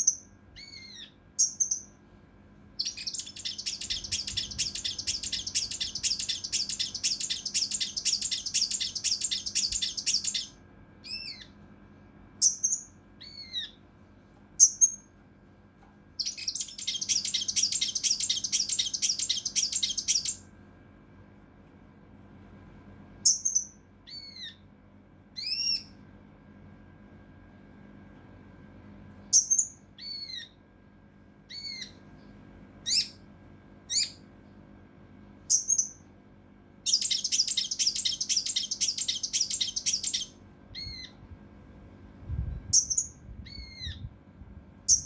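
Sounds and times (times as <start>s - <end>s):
bird singing harsh rattling trill: 0.0s - 2.0s, 2.8s - 11.5s, 12.4s - 13.8s, 14.6s - 15.0s, 16.2s - 20.4s, 23.3s - 24.6s, 29.4s - 30.5s, 32.9s - 33.2s, 35.5s - 36.0s, 36.8s - 41.1s, 42.7s - 43.9s.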